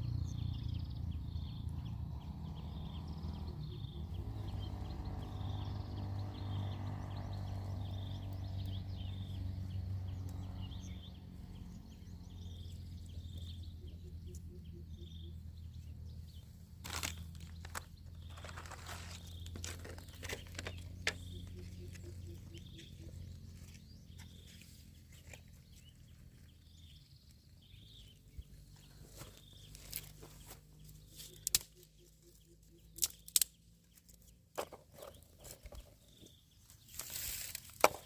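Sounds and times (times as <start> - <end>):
crunching handling noises: 16.7 - 26.4, 28.9 - 31.8, 36.7 - 38.0.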